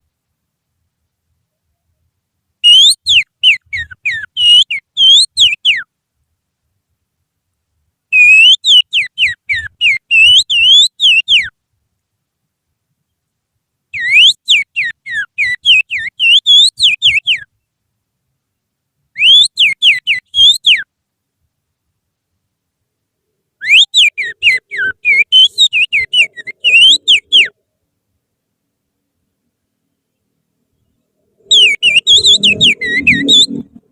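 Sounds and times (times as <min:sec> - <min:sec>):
person finger-whistling birdsong: 0:08.2 - 0:11.5, 0:14.0 - 0:17.5, 0:23.6 - 0:27.5, 0:31.5 - 0:33.6.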